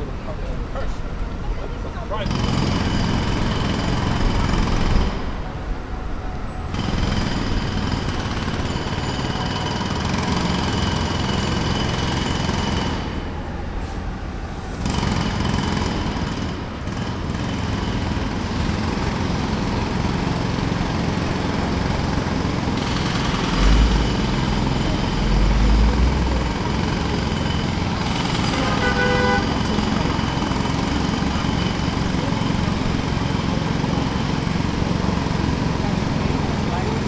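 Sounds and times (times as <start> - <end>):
jackhammer hammering pavement: 2.2 - 5.4, 6.7 - 13.4, 14.8 - 37.0
low engine rumble: 19.3 - 37.0.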